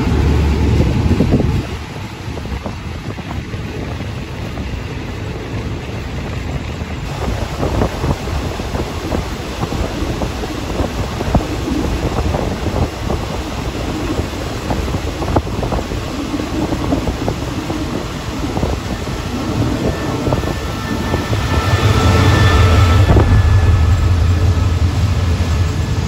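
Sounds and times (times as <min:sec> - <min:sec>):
train carriage rumble: 0:00.0 - 0:26.0
air rushing past: 0:07.0 - 0:26.0.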